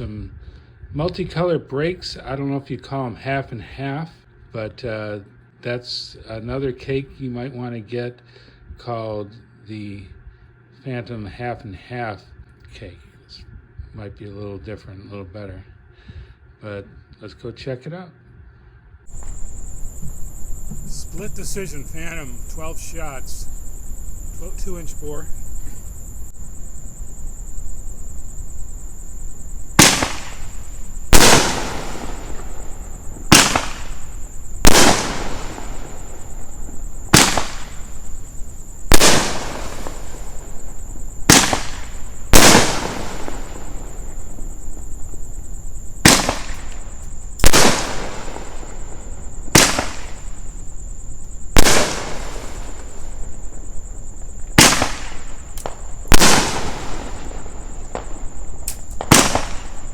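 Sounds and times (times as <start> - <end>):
firework booms: 19.1 - 59.9.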